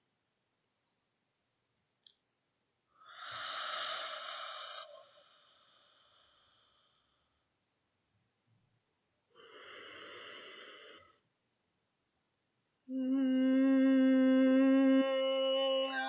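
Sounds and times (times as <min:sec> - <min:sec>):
woman breathing in: 0:03.0 - 0:07.4, 0:09.4 - 0:11.2
woman singing low note: 0:12.9 - 0:16.0.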